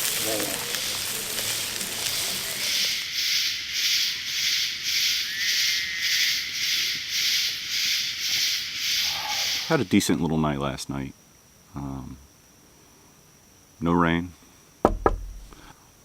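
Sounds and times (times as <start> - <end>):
pulsing high hiss: 0.0 - 10.8
insects chirping: 0.0 - 16.0.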